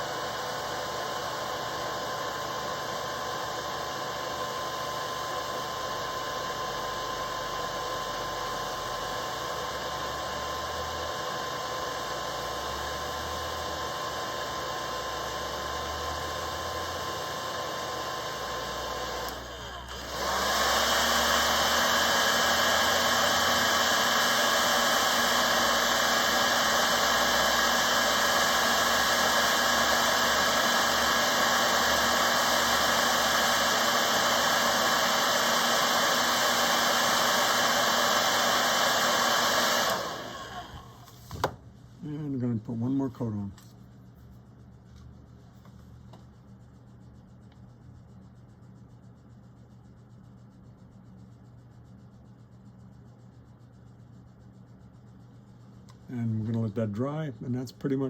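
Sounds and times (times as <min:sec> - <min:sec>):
hair dryer blowing: 0:00.0 - 0:41.6.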